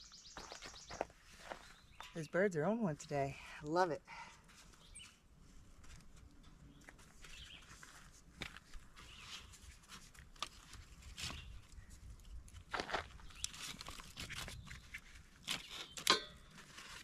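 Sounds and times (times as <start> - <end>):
faint birdsong: 0.0 - 2.4, 4.1 - 5.4, 6.3 - 8.0, 8.8 - 9.8, 11.2 - 12.1, 13.2 - 13.8, 14.4 - 16.2.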